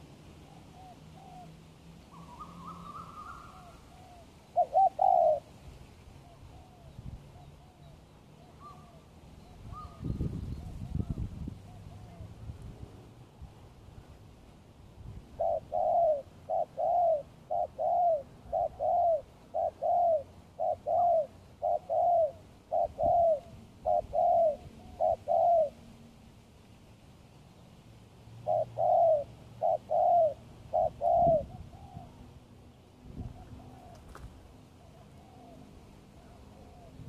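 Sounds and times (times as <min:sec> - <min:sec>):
dove cooing: 0:00.0 - 0:05.5, 0:15.4 - 0:25.9, 0:28.4 - 0:32.3, 0:33.2 - 0:37.0.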